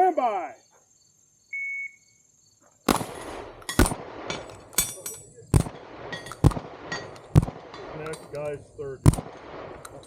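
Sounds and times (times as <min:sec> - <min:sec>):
shotgun shots: 0:02.9 - 0:10.0.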